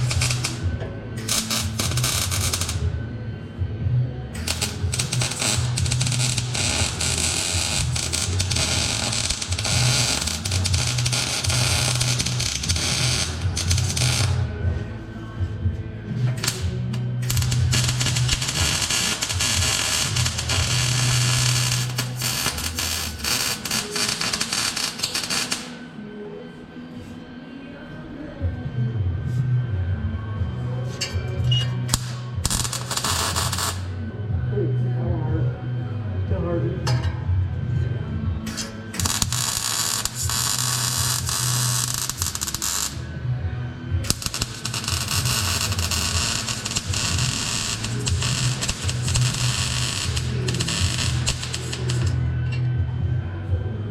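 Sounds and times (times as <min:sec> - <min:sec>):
welder arc crackling: 0:00.0 - 0:00.6, 0:01.2 - 0:02.8, 0:04.4 - 0:14.5, 0:16.4 - 0:25.9, 0:31.9 - 0:33.9, 0:38.5 - 0:43.0, 0:44.1 - 0:52.3
low steady welder buzz: 0:00.0 - 0:02.9, 0:04.3 - 0:14.6, 0:16.2 - 0:25.8, 0:31.9 - 0:33.9, 0:38.5 - 0:52.6.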